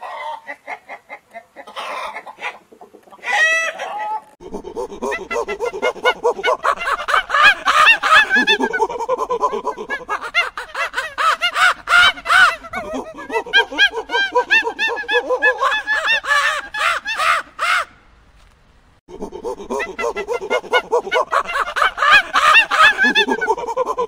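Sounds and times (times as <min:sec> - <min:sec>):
flock of birds calling: 0:05.1 - 0:17.9, 0:19.7 - 0:23.7.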